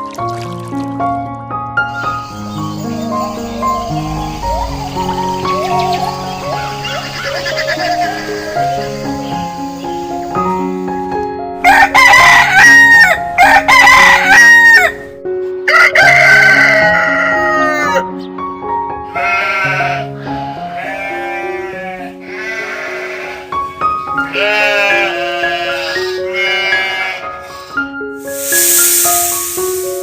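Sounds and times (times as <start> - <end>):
background music: 0.0 - 30.0
rooster crowing: 11.6 - 15.0, 15.7 - 18.0.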